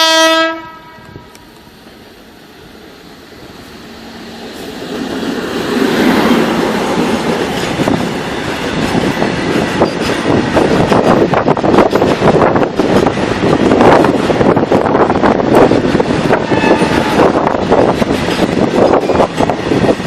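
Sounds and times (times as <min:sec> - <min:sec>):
freight train rumbling past: 0:00.0 - 0:20.0
wheels clattering over rail joints: 0:05.7 - 0:14.9.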